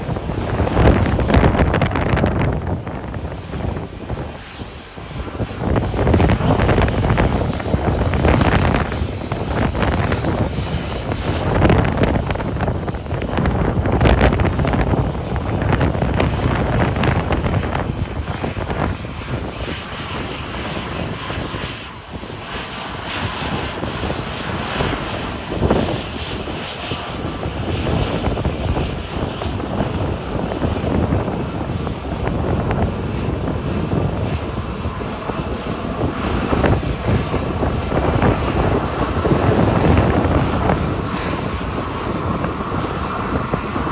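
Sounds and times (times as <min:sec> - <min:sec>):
airliner engines rumbling: 0:00.0 - 0:43.9
jet engine whine: 0:00.0 - 0:43.9.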